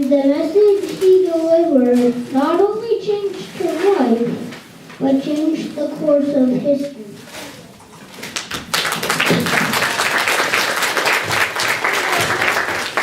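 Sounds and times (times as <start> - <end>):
congregation clapping: 8.3 - 13.0.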